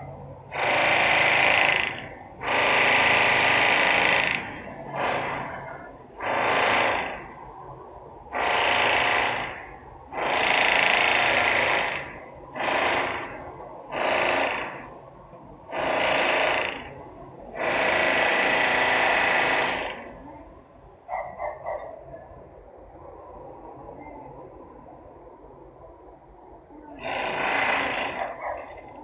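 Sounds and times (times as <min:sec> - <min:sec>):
industrial machine noise bursts: 0:00.5 - 0:07.5, 0:08.3 - 0:15.0, 0:15.7 - 0:20.2, 0:27.0 - 0:28.4.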